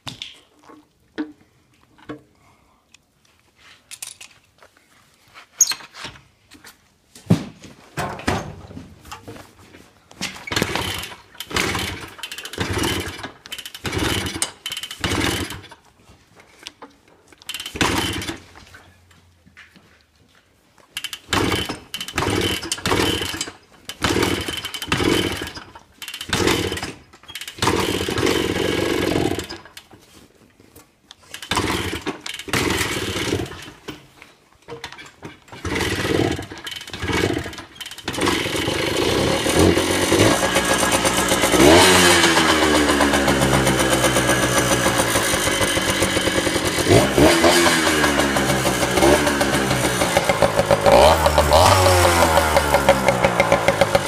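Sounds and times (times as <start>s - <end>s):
motorcycle engine sputtering: 21.1s - 29.6s, 35.6s - 54.0s
motorcycle engine running and revving: 35.7s - 54.0s.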